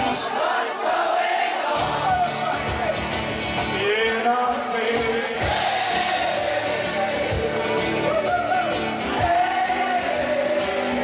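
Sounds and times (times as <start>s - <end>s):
band playing pop-rock song: 1.8s - 11.0s
drum hits: 4.9s - 9.6s.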